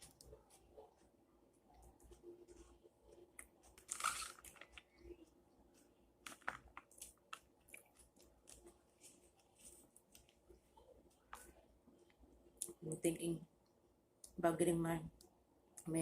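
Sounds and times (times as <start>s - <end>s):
chewing and crunching salad: 3.4s - 5.0s, 6.3s - 10.4s.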